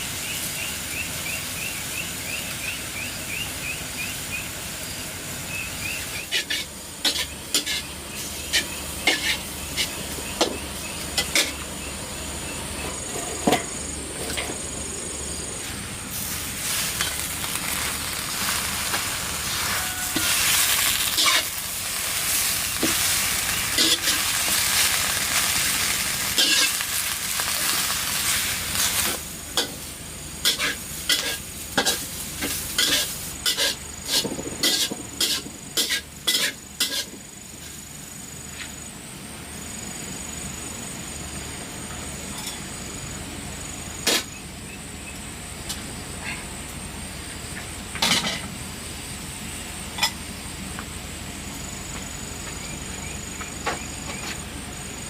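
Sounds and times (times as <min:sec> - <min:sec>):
food sizzling in a pan: 0:00.0 - 0:12.2, 0:13.0 - 0:38.0.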